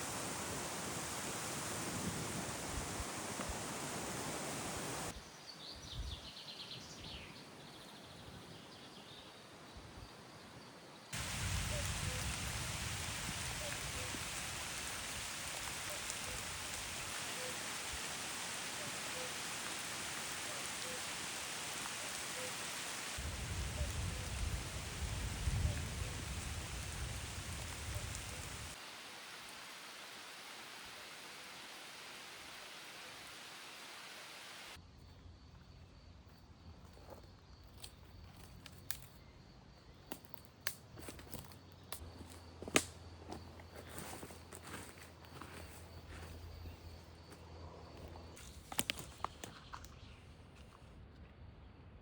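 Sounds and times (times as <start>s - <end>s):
rain: 0.0s - 5.2s, 11.1s - 34.8s
thunder rumbling: 23.2s - 28.8s.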